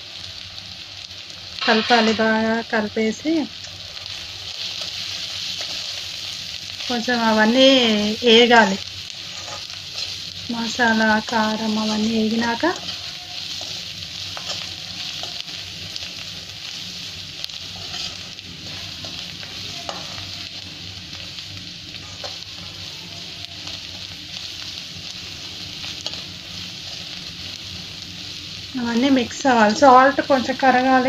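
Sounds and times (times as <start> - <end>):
food sizzling in hot oil: 0.0 - 31.0
metal spoon scraping pan: 9.2 - 10.2, 17.6 - 20.3.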